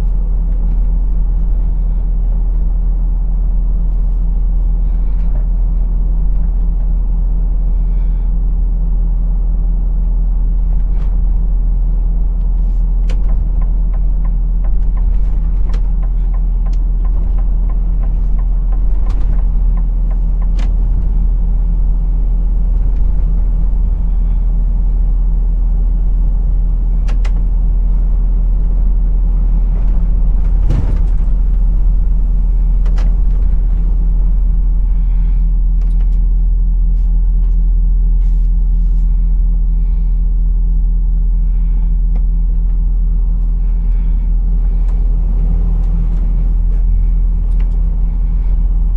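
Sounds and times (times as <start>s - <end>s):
lorry engine running: 0.0s - 40.7s, 41.4s - 48.9s
low road rumble: 0.0s - 48.9s
sharp clicks and rattles: 12.3s - 24.4s.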